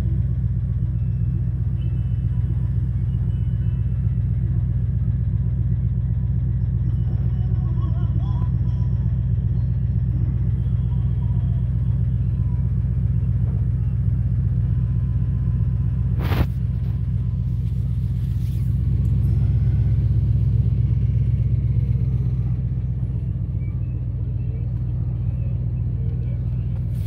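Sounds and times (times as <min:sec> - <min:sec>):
engine idling: 0:00.0 - 0:27.0.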